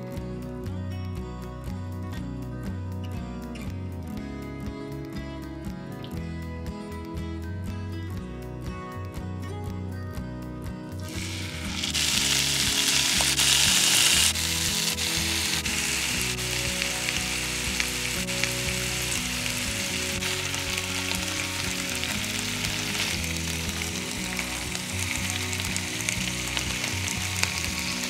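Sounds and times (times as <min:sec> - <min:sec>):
meat sizzling in a pan: 0:11.1 - 0:28.0.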